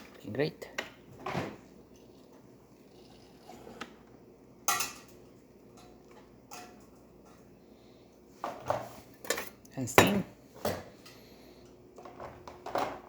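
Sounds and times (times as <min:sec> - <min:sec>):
faint steady hum: 0:00.0 - 0:13.0
dishware clinking: 0:09.2 - 0:10.3.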